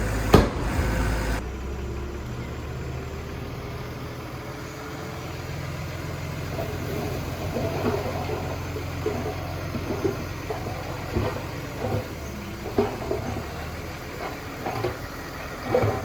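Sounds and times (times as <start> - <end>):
heavy machinery diesel engine: 0.0 - 16.0
clanks and rattles: 6.5 - 16.0.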